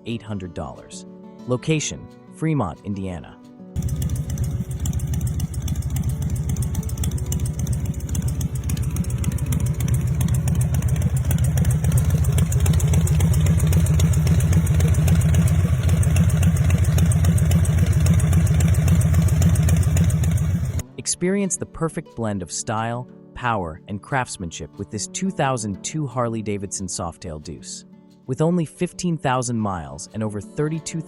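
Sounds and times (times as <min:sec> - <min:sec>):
motorcycle engine pulsing: 0:03.8 - 0:20.8.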